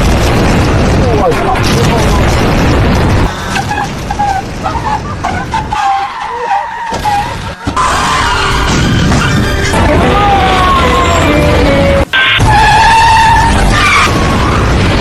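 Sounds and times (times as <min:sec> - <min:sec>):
tyres skidding and squealing: 0:03.3 - 0:15.0.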